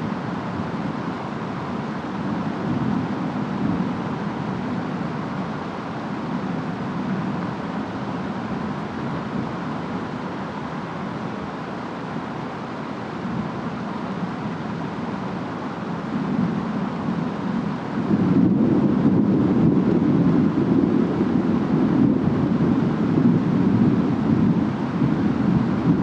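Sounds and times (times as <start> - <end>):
rain: 0.0 - 26.0
wind: 0.0 - 26.0.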